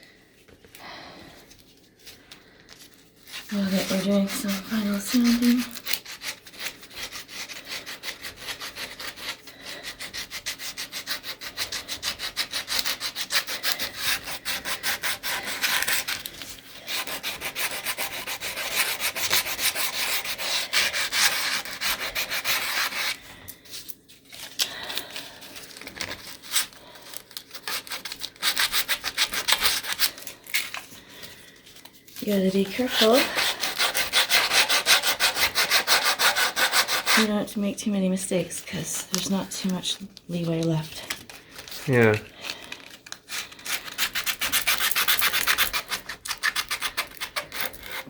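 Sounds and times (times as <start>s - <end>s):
sandpaper rubbing on wood: 3.5s - 16.2s, 16.9s - 23.2s, 32.8s - 37.3s.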